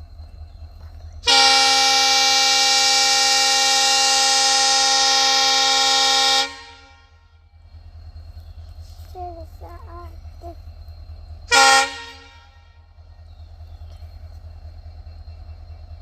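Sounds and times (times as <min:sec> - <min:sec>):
locomotive air horn blast: 0:01.2 - 0:07.3, 0:11.5 - 0:12.9.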